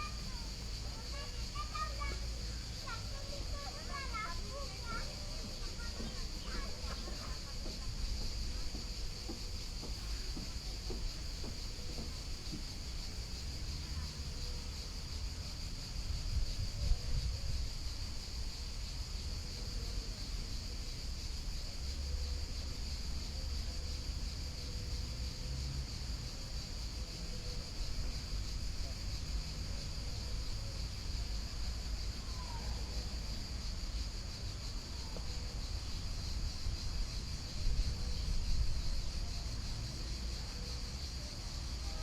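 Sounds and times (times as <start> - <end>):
high-pitched insect chorus: 0.0 - 42.0.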